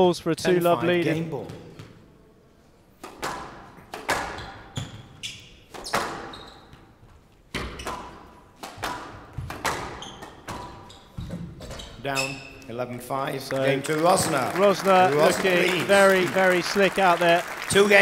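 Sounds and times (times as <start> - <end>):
squash ball hitting walls: 3.0 - 6.9, 7.5 - 11.8
short high squeaks: 9.9 - 12.7.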